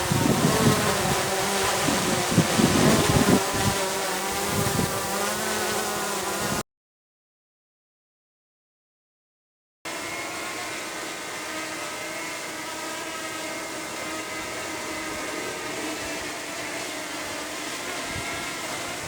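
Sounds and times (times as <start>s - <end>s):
drone propellers whining: 9.9s - 19.0s.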